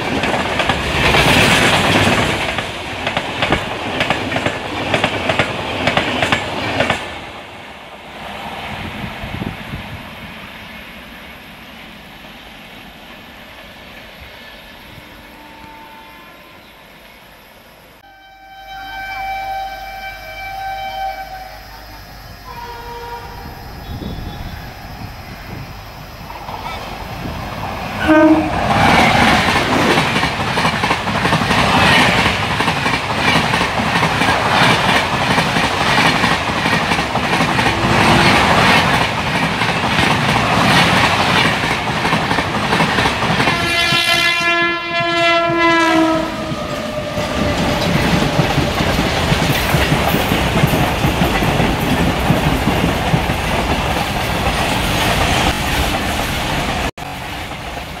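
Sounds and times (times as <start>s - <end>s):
train wheels clattering on rails: 0.0s - 7.5s, 26.3s - 58.0s
train horn blast: 14.9s - 16.9s, 18.0s - 24.8s, 28.0s - 29.3s, 43.4s - 48.0s.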